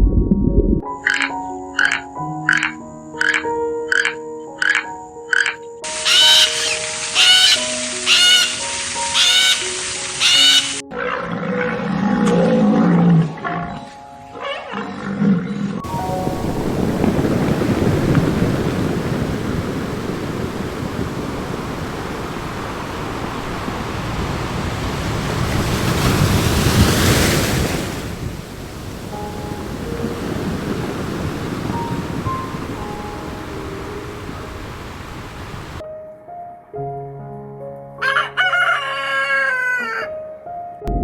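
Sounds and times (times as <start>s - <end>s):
soft music: 0.0s - 19.2s, 29.0s - 41.0s
rushing noise: 5.8s - 10.8s, 15.8s - 35.8s
big cat growling: 10.9s - 13.8s, 14.7s - 15.8s.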